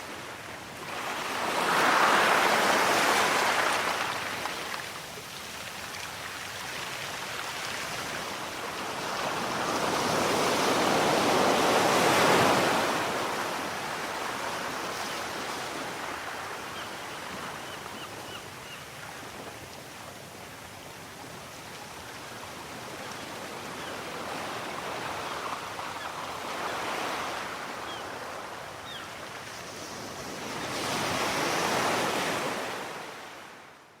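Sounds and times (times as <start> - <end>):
waves washing onto shore: 0.0 - 17.5.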